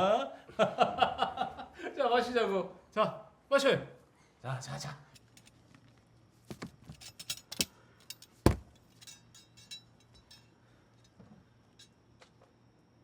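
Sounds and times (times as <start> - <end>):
glasses clinking: 6.5 - 10.5
heavy knock on table: 8.5 - 8.7.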